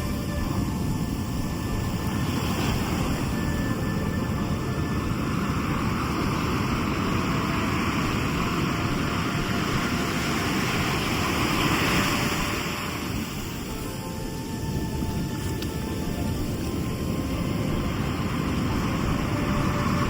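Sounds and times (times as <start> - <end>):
low rumble of sea: 0.0 - 20.0
wave rushing in: 0.0 - 20.0.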